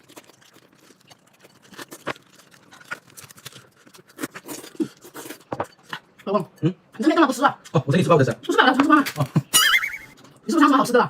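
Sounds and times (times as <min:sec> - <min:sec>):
chewing: 0:00.0 - 0:06.8.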